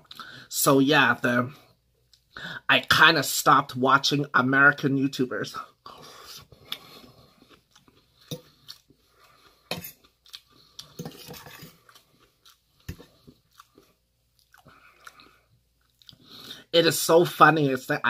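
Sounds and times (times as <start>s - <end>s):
person chewing food: 5.9s - 16.6s
metal fork scraping metal bowl: 9.7s - 10.0s, 11.0s - 11.8s.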